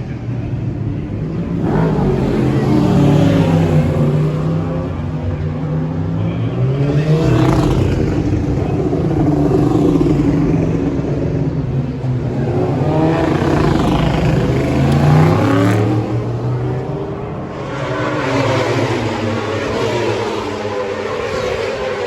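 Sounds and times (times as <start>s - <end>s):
racing motorcycle engines: 0.0s - 22.0s
motorcycle passing by: 6.5s - 22.0s.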